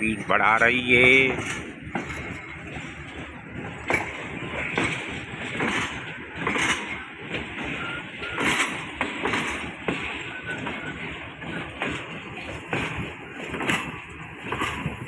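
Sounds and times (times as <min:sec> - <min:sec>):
train rumble: 0:00.0 - 0:15.0
train wheels clattering on rail joints: 0:00.0 - 0:15.0.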